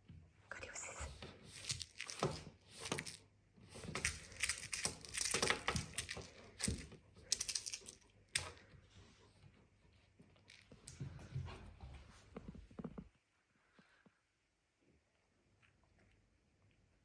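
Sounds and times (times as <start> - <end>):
cat toy rattling on hard surface: 3.9 - 8.0.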